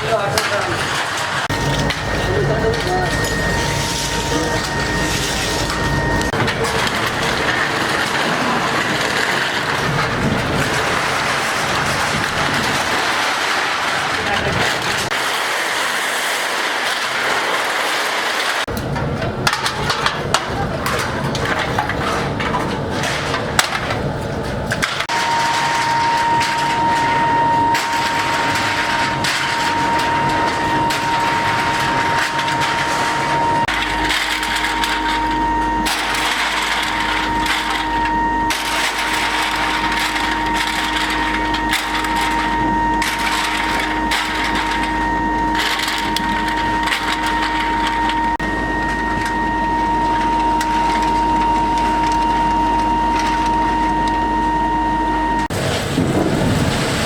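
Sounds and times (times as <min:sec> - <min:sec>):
scraping and knocking: 0:00.0 - 0:54.0
motor whine: 0:01.4 - 0:11.3, 0:25.1 - 0:55.6
low hum: 0:01.4 - 0:13.0, 0:25.1 - 0:56.6.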